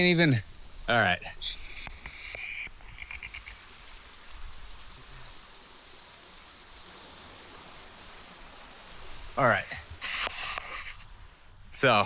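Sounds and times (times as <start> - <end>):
waterfall rushing: 3.2 - 11.0.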